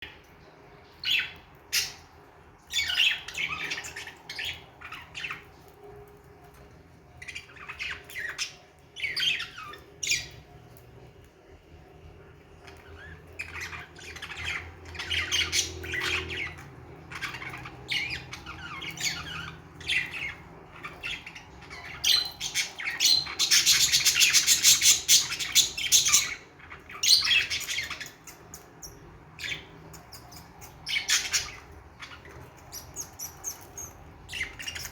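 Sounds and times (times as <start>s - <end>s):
budgerigars chirping and squawking: 0.8s - 10.6s, 12.5s - 34.9s
buzzy bird chatter: 12.6s - 34.9s.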